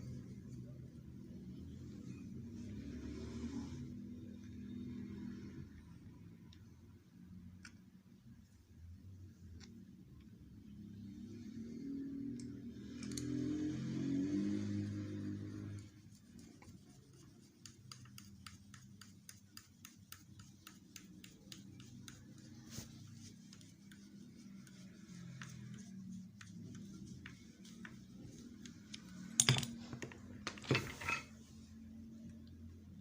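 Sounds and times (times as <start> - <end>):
low steady hum: 14.9 - 33.0.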